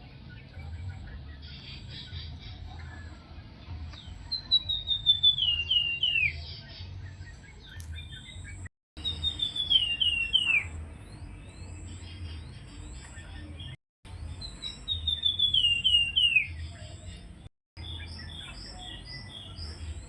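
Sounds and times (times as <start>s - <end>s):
songbird whistling: 4.2s - 6.5s, 7.1s - 12.0s, 14.4s - 16.6s.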